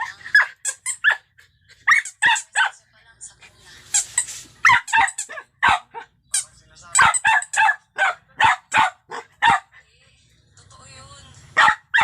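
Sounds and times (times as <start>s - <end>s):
puppy yapping: 4.6s - 6.1s, 11.6s - 12.0s.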